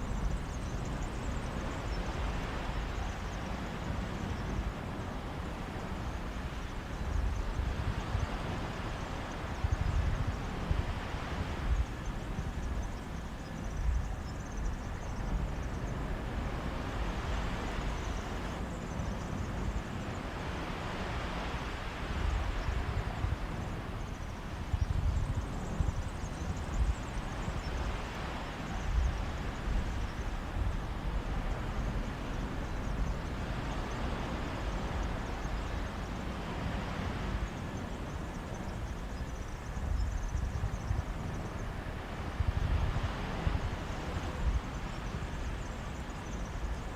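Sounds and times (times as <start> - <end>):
wind gusting on microphone: 0.0 - 46.9
sea waves washing on beach: 14.6 - 46.9.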